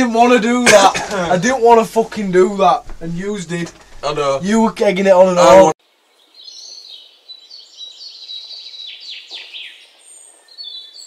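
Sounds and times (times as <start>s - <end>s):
birds chirping: 0.0s - 11.0s
downward-sweeping bird calls: 6.2s - 11.0s.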